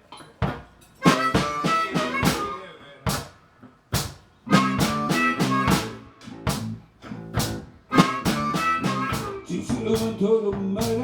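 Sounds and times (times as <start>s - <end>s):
drum kit hits: 0.4s - 2.5s, 4.0s - 11.0s
live band playing: 1.0s - 3.4s, 4.0s - 11.0s.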